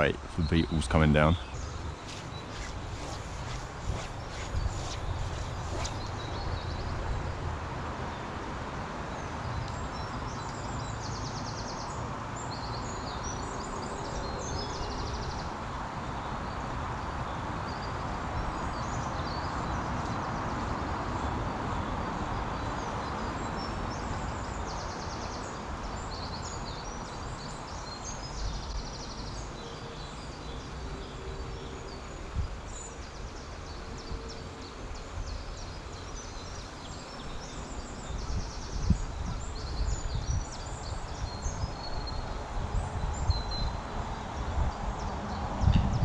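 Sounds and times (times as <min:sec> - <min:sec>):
steady rushing noise: 0:00.0 - 0:06.8
songbirds chirping and trilling: 0:00.0 - 0:08.4, 0:09.1 - 0:46.0.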